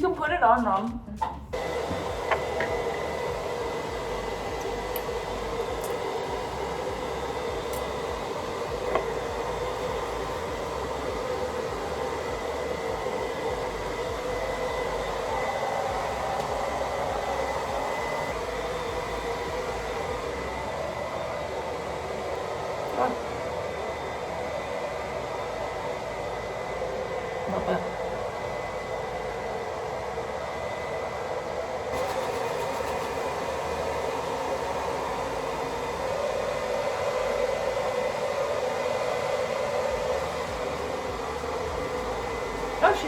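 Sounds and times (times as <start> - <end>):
hair dryer blowing with whine: 0.0 - 43.0.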